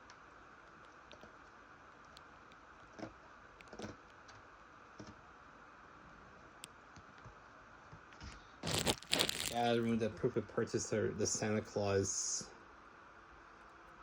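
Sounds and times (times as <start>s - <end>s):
steady hiss: 8.4s - 12.7s.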